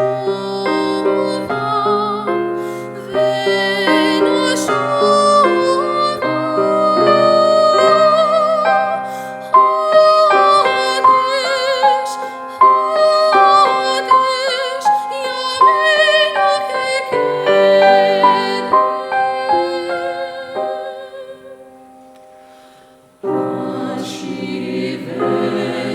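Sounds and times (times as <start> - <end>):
vocal ensemble singing: 0.0 - 21.4, 23.2 - 25.9
piano accompaniment: 0.0 - 25.9.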